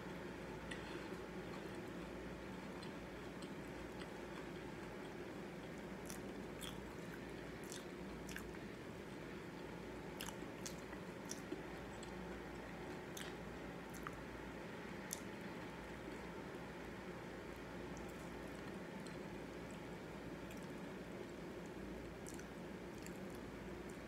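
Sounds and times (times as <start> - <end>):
steady low hum: 0.0 - 24.0
chewing crunchy cereal: 0.6 - 8.6, 10.2 - 14.3, 22.2 - 24.0.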